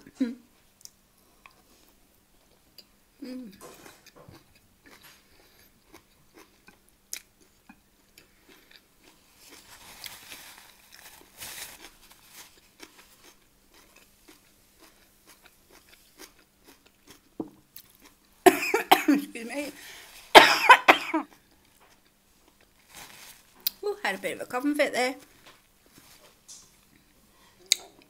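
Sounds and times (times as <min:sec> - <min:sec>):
person chewing rice: 0:03.5 - 0:18.3, 0:21.3 - 0:22.9
breathy sounds into tissue: 0:09.2 - 0:12.6, 0:19.8 - 0:20.3, 0:22.8 - 0:23.5.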